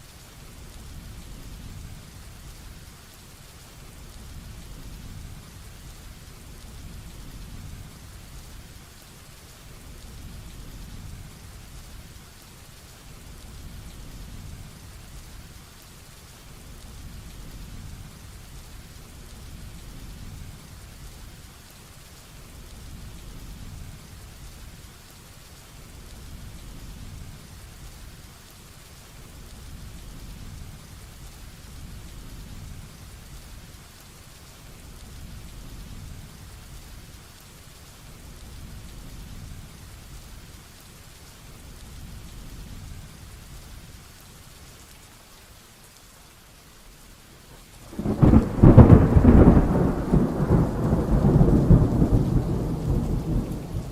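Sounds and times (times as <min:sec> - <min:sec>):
heavy rain falling: 0:00.0 - 0:53.9
low thunder rumble: 0:47.8 - 0:53.9.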